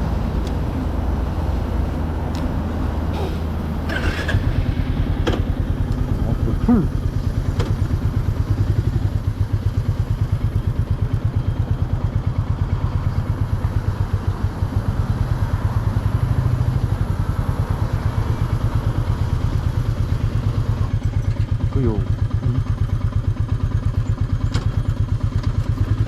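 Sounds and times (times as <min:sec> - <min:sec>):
single-cylinder engine thumping: 0:01.9 - 0:13.0, 0:18.6 - 0:26.0.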